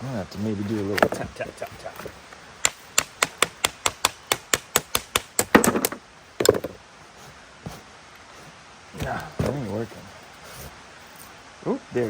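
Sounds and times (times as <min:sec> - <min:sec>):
heavier knocks: 0:03.0 - 0:06.8.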